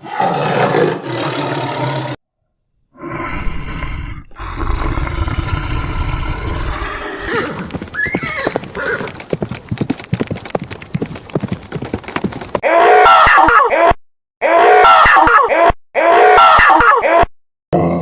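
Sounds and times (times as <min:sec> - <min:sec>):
hoof clatters: 0:07.3 - 0:12.6.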